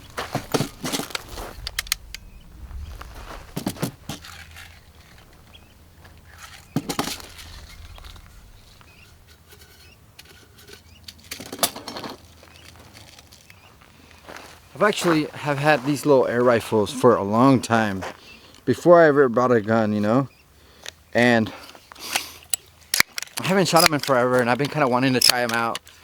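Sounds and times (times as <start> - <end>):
handling clicks and rustling: 0.0 - 13.7, 21.6 - 26.0.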